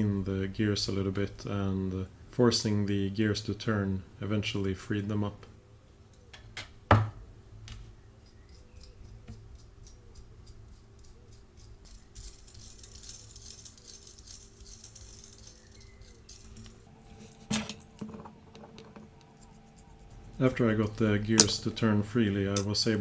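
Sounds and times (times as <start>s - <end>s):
small metal gears clicking: 8.2s - 18.0s.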